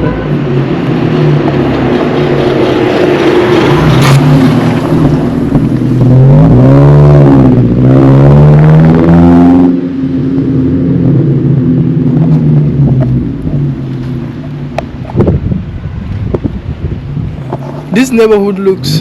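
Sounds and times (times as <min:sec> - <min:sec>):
vehicle engine passing: 0:00.0 - 0:15.7.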